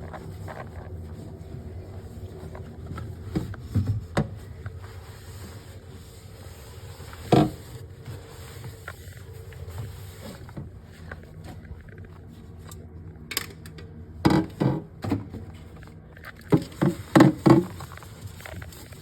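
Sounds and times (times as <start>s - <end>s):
low steady hum: 0.0s - 19.0s
objects knocking and clunking: 13.3s - 19.0s.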